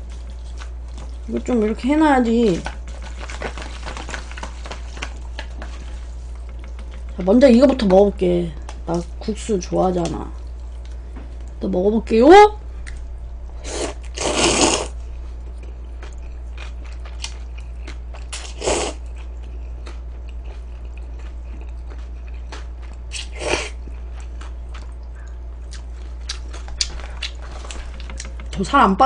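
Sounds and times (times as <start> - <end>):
low electrical hum: 0.0 - 29.0
wet chewing clicks: 6.3 - 7.9, 15.4 - 28.6
person slurping noodles: 13.6 - 15.0, 18.4 - 19.0.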